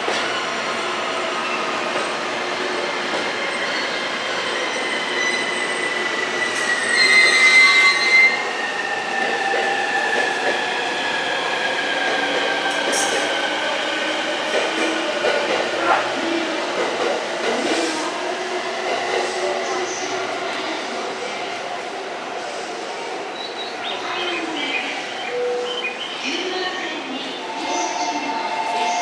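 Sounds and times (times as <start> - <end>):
train wheels squealing on rails: 0.1 - 13.5.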